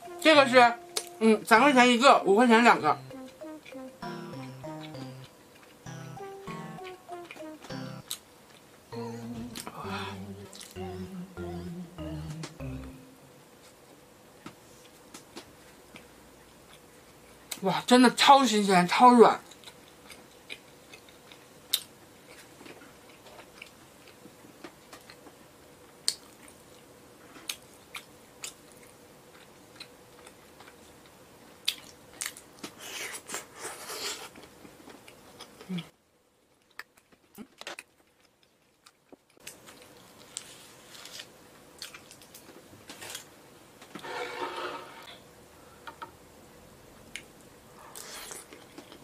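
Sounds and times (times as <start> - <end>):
chewing bread with wet mouth sounds: 19.4 - 35.8, 36.5 - 42.6.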